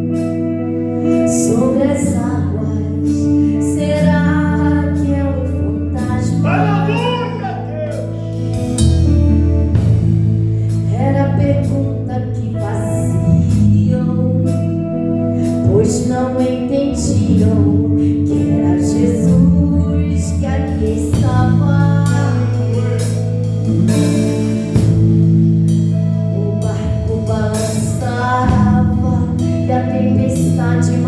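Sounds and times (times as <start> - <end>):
band playing: 5.8 - 10.8
person singing: 5.9 - 8.3.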